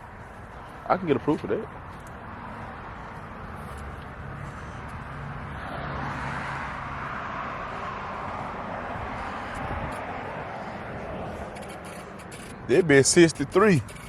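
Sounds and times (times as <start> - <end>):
vehicle passing: 0.0 - 14.0.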